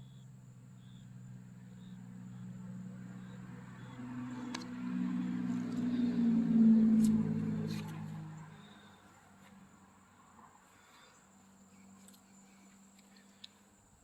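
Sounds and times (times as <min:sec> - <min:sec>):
insect chirps: 0:00.0 - 0:14.0
vehicle passing by: 0:00.4 - 0:13.0.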